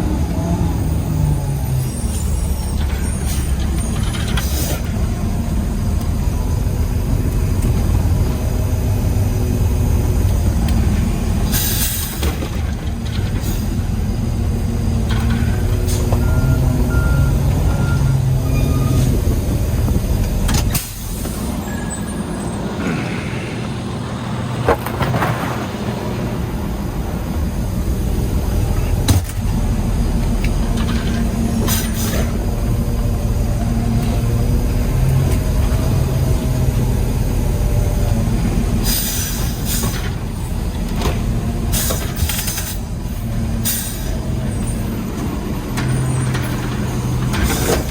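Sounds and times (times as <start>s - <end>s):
garbage truck engine hum: 0.0s - 47.9s.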